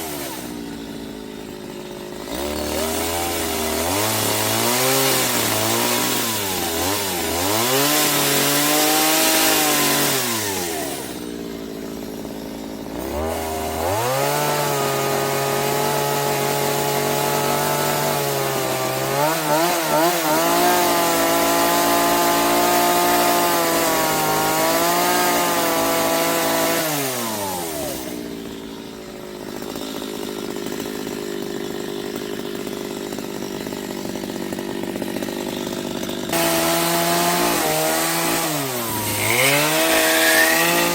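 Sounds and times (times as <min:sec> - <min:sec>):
chainsaw revving: 0:00.0 - 0:40.9.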